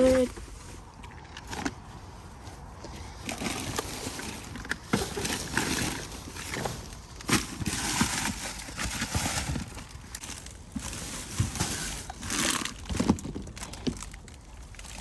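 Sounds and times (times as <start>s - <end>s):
bags and packaging rustling: 0.0s - 15.0s
trash knocking and clattering: 10.6s - 12.2s, 12.8s - 14.0s.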